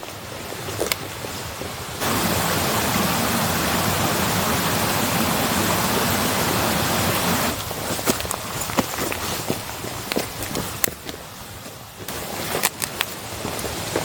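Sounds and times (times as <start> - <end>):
loud rushing noise: 2.0 - 7.6.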